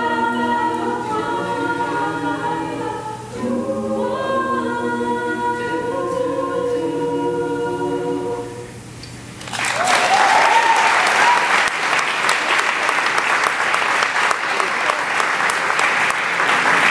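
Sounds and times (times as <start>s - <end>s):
vocal group singing a chord: 0.0s - 9.0s
audience applause and cheering: 9.4s - 16.9s
rising whoop: 9.6s - 11.7s.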